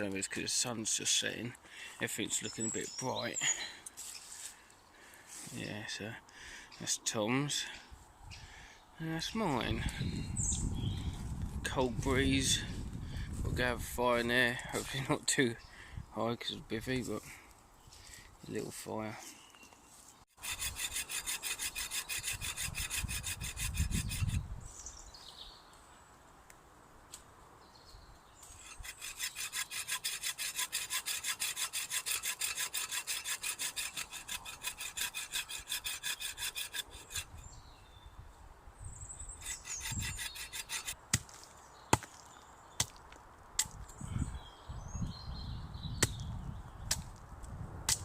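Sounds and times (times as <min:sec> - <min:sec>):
hand saw cutting wood: 0:20.4 - 0:24.4, 0:28.4 - 0:37.4, 0:39.4 - 0:41.0.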